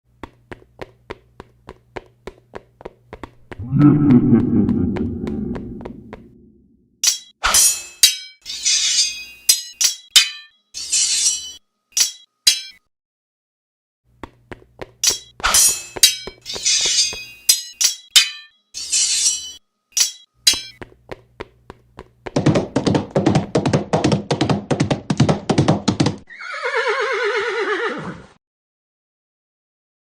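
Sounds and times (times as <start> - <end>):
horse hooves clattering: 0.1 - 6.4, 20.4 - 26.3
horse whinny: 26.3 - 28.4.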